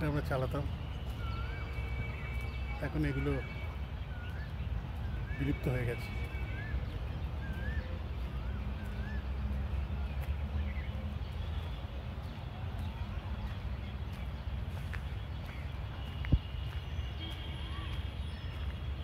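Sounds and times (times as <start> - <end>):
bird whistling wavering notes: 1.0 - 2.7, 3.4 - 9.6.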